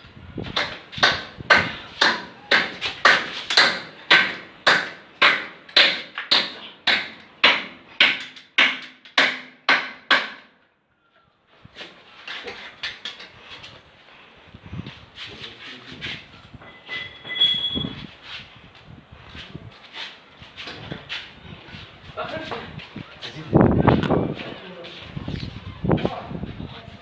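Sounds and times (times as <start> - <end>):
rough continuous noise: 0.0 - 27.0
hammer striking with ringing: 0.6 - 10.4, 16.7 - 17.9.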